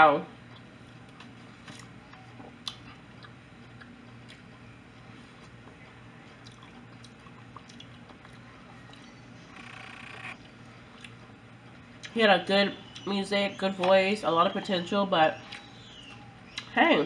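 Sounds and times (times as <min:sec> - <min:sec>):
low steady hum: 0:00.0 - 0:17.0
faint chewing: 0:00.5 - 0:09.2, 0:10.4 - 0:12.2.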